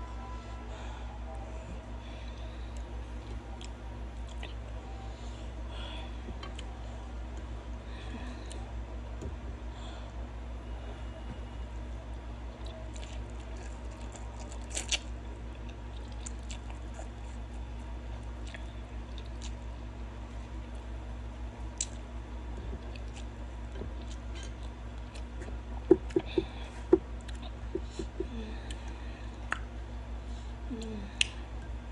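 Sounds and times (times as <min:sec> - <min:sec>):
steady low hum: 0:00.0 - 0:31.9
wet chewing and squishing: 0:12.5 - 0:19.6, 0:27.2 - 0:28.9.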